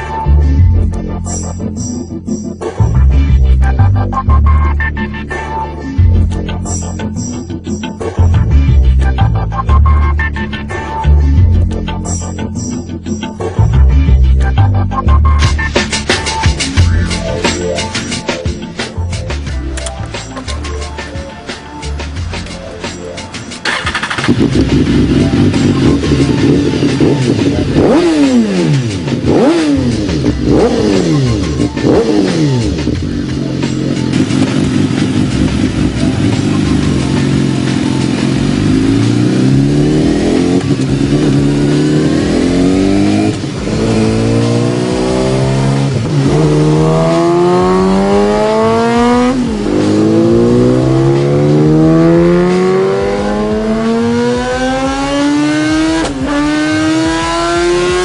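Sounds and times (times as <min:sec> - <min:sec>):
motorcycle engine revving and accelerating: 0:23.6 - 0:58.0.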